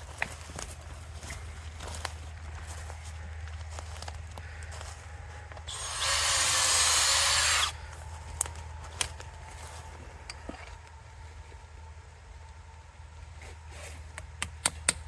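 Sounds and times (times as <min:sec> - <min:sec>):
power drill boring into wood: 0:05.7 - 0:07.8.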